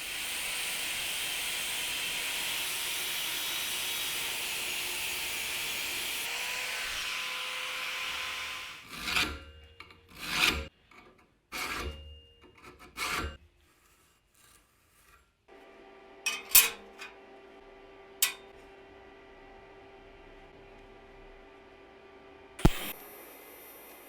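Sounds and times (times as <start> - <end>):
scraping strokes on wood: 7.0 - 15.5.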